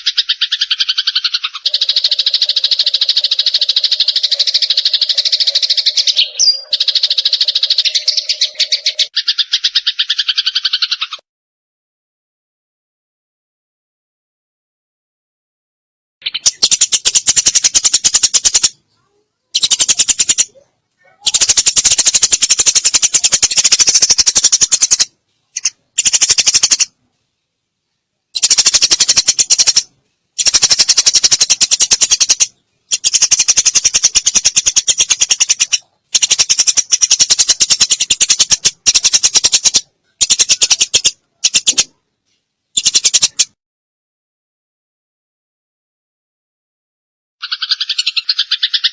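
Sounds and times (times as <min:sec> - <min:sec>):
sparrows chirping: 0:00.0 - 0:11.2, 0:16.2 - 0:27.0, 0:28.3 - 0:42.0, 0:42.7 - 0:43.6, 0:47.4 - 0:48.9.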